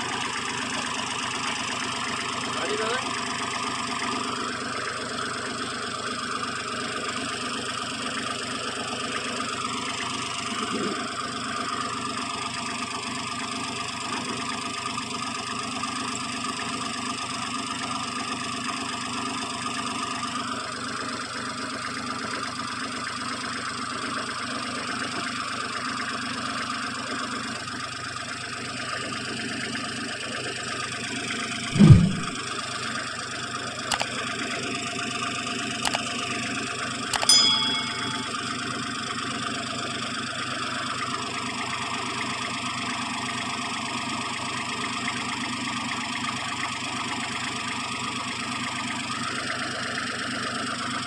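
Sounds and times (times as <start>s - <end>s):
loud low thump: 31.8s - 32.4s.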